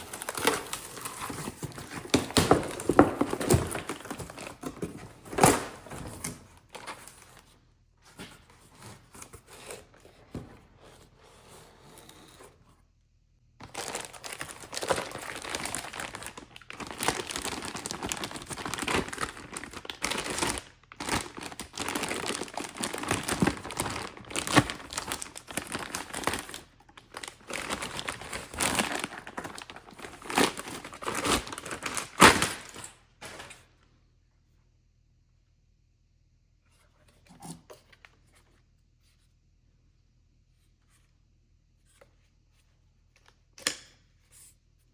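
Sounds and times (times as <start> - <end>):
packaging wrap crinkling and tearing: 0.0 - 7.4, 13.6 - 33.6.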